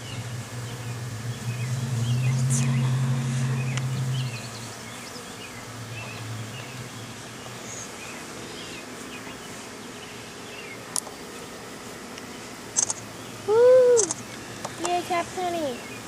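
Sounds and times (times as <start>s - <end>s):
small birds chirping: 0.0s - 11.3s, 12.2s - 16.0s
honeybees humming: 0.0s - 16.0s
sharp click: 12.8s - 13.0s, 14.0s - 15.0s.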